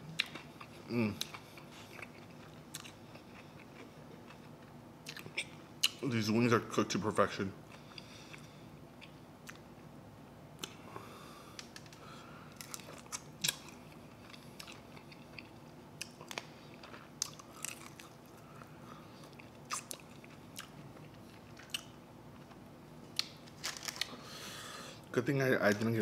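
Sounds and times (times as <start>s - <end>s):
man chewing chicken wings: 0.1s - 6.0s, 11.6s - 22.6s.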